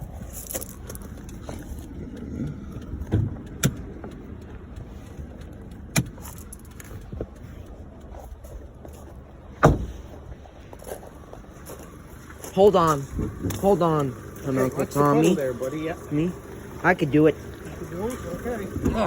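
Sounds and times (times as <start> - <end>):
car engine idling: 0.0 - 19.0
car hood latch clicks and knocks: 9.6 - 10.0
metallic thump: 9.6 - 10.1.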